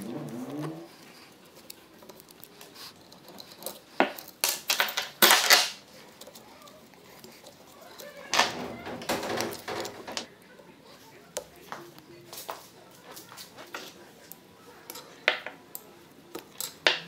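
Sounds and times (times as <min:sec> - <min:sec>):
metal tools clinking and knocking: 0:03.0 - 0:10.3.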